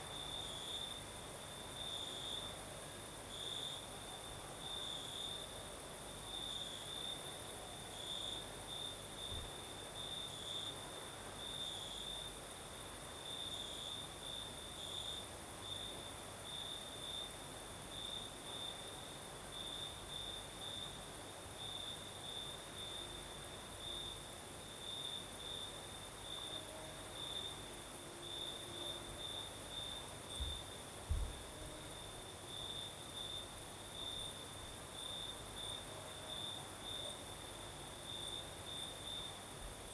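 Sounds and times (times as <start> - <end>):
cricket chirping: 0.0 - 39.9
low thump: 30.4 - 31.4.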